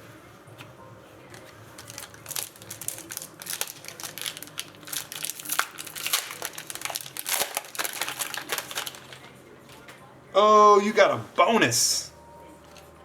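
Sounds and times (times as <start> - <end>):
plastic wrapper crinkling: 1.3 - 9.8.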